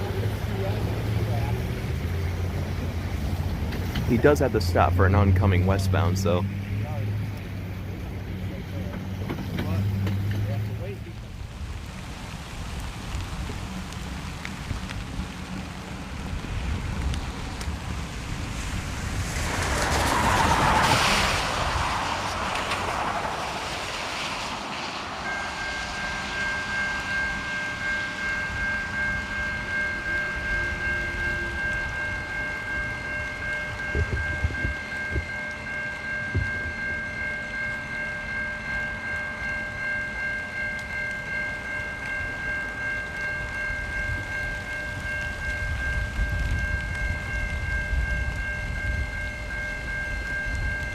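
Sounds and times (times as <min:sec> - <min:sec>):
railroad crossing bell ringing: 0:00.0 - 0:11.2, 0:19.4 - 0:50.9
freight train rumble: 0:00.0 - 0:50.9
rushing noise: 0:00.0 - 0:50.9.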